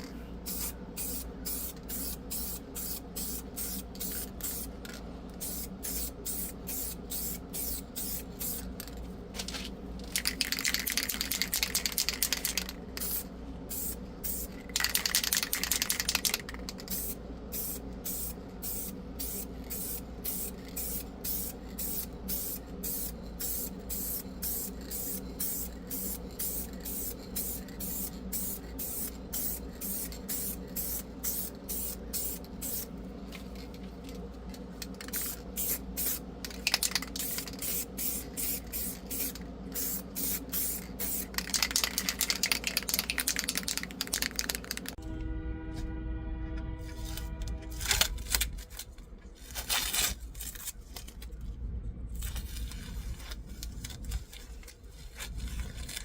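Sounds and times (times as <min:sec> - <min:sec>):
steady low hum: 0:00.0 - 0:56.0
spray paint bursts: 0:00.5 - 0:04.7, 0:05.4 - 0:08.7, 0:10.4 - 0:32.9, 0:36.8 - 0:44.5.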